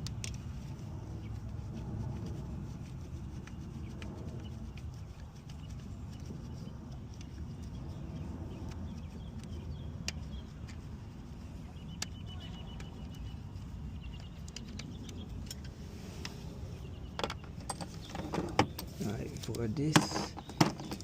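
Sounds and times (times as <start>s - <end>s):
low background rumble: 0.0s - 21.0s
hand tools tapping engine parts: 17.2s - 21.0s.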